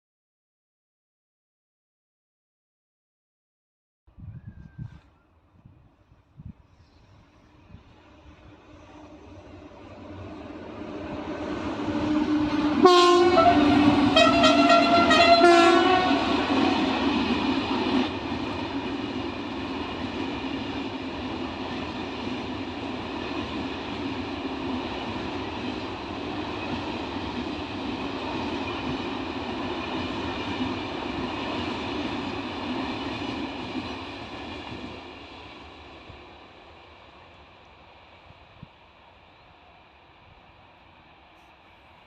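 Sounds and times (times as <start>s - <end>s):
train coaches running noise: 6.1s - 42.0s
train horn: 11.8s - 17.0s.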